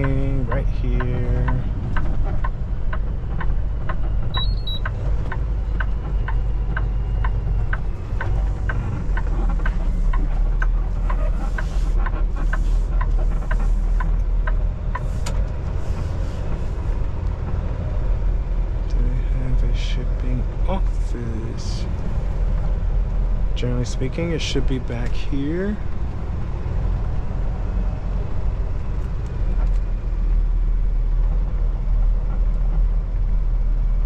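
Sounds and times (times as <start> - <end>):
turn signal relay ticking: 0.0 - 15.1
diesel truck engine idling: 0.0 - 34.0.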